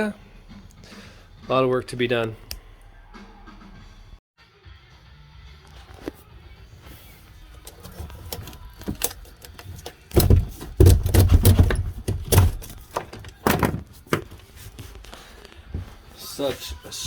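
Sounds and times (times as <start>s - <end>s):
sharp clicks and knocks: 7.6s - 14.3s.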